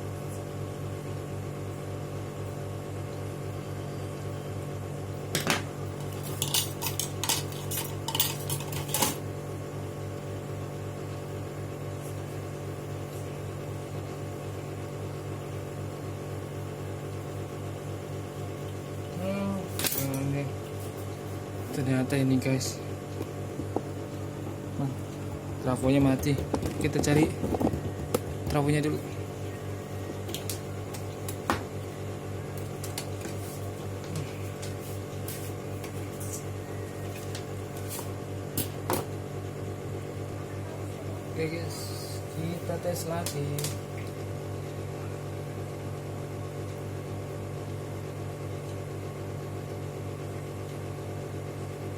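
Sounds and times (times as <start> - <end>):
low pulsing hum: 7.8 - 38.6.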